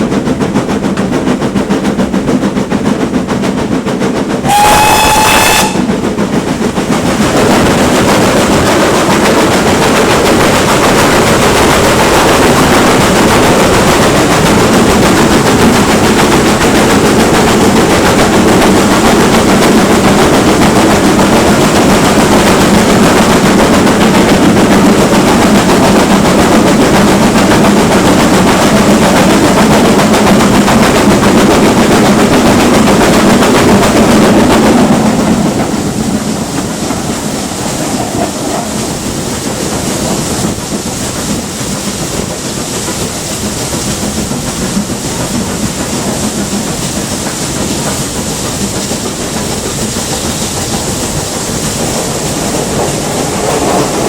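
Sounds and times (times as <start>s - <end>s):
steam locomotive exhaust beats: 0.0s - 54.0s
steam locomotive whistle: 4.4s - 6.0s.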